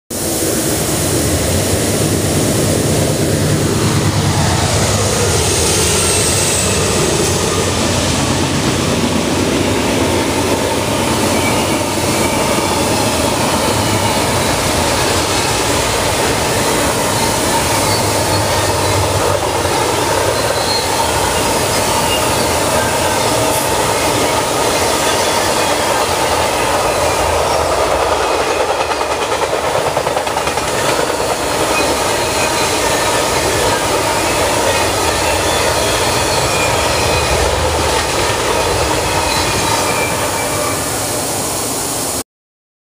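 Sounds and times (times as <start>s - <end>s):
diesel locomotives droning: 0.1s - 42.2s
freight cars rumbling and clattering: 6.6s - 40.5s.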